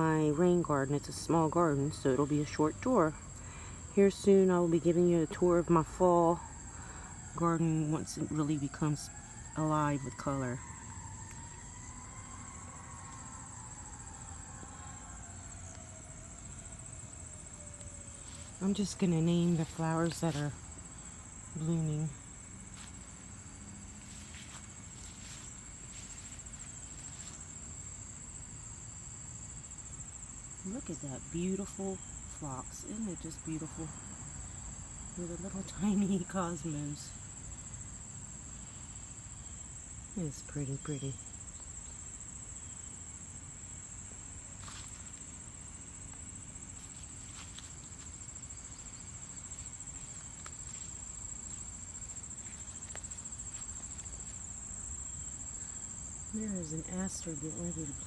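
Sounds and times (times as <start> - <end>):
insects trilling: 0.0 - 58.0
soft rustles: 23.9 - 27.6, 46.7 - 54.6.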